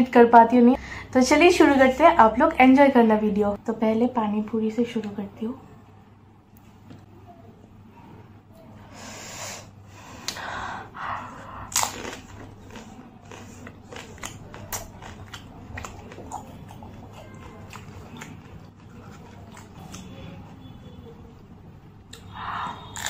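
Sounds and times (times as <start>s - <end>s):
crunching crisp food: 11.6s - 20.6s.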